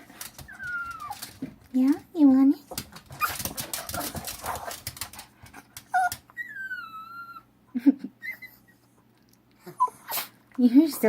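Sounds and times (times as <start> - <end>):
dog whining and squeaking: 0.4 - 1.4, 5.9 - 7.5, 8.2 - 8.9, 9.6 - 10.4.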